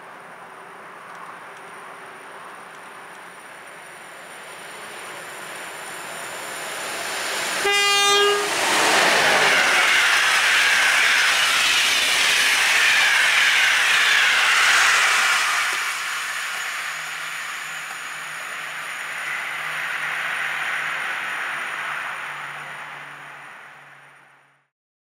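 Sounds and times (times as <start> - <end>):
train rushing past: 0.2 - 24.6
locomotive horn blast: 7.6 - 8.6.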